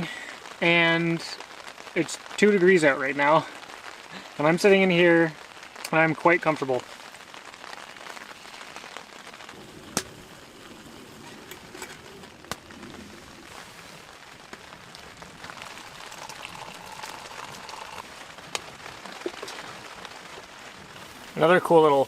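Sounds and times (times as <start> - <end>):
rain on tent fabric: 0.0 - 22.0
sharp pops: 9.9 - 10.2.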